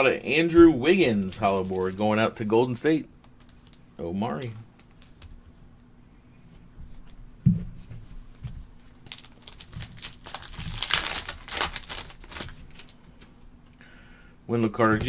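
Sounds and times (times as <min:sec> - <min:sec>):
foil wrapper tearing and crinkling: 0:01.2 - 0:02.3, 0:03.4 - 0:03.8, 0:09.1 - 0:13.0.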